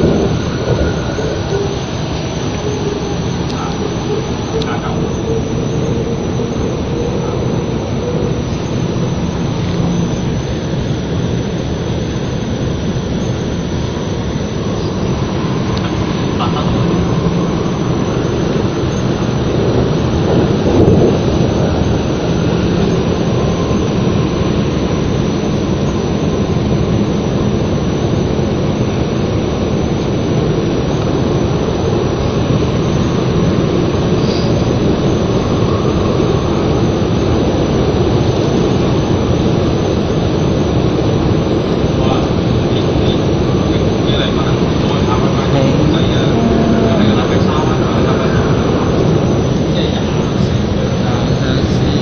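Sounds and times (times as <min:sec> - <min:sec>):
electric train rumbling: 0:00.0 - 0:52.0
faint low hum: 0:42.0 - 0:49.1.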